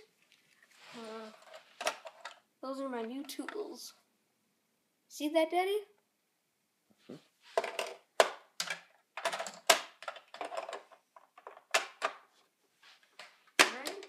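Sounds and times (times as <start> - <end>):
plastic attachments clicking together: 13.6 - 14.0.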